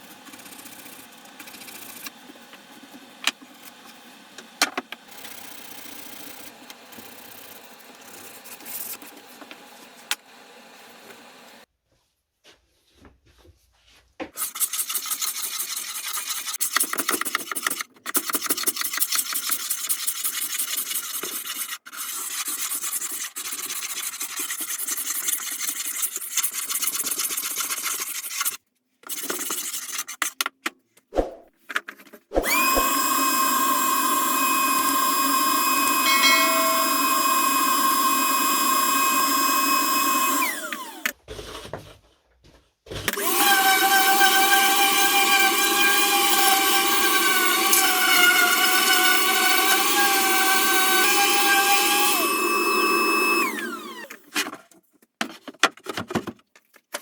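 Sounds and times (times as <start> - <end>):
scraping and rasping: 14.4 - 30.4
electric power tool whining: 32.4 - 41.1, 43.1 - 54.2.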